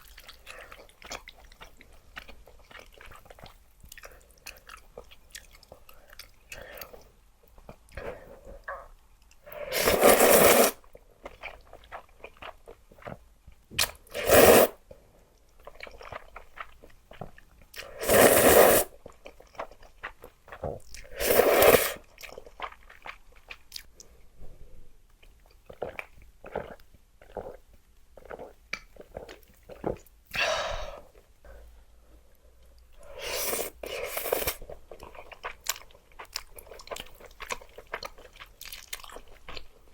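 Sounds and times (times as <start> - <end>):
loud slurps of noodles: 9.6 - 10.8, 14.1 - 14.8, 17.8 - 18.9, 21.1 - 22.0, 33.1 - 34.6
wet chewing: 33.2 - 39.9.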